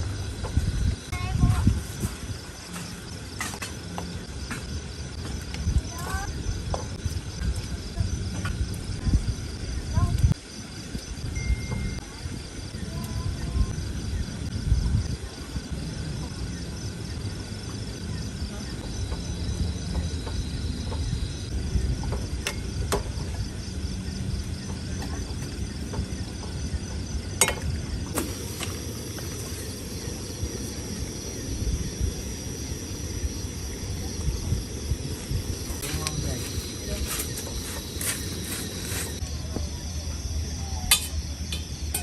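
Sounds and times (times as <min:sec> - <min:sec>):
insects chirping chorus: 0:00.0 - 0:42.0
low rumble: 0:27.7 - 0:39.2.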